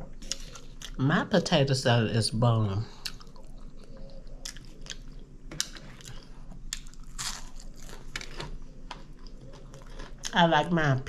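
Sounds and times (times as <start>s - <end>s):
person chewing with wet smacks: 2.9s - 10.4s.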